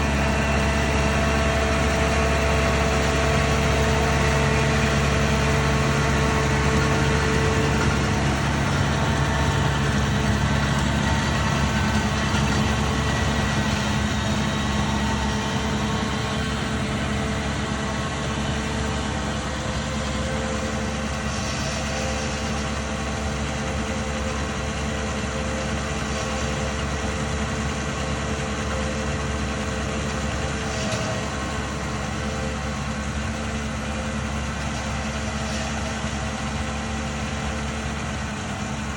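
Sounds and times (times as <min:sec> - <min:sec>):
engine running steadily: 0:00.0 - 0:38.9
faint machine noise: 0:00.0 - 0:38.9.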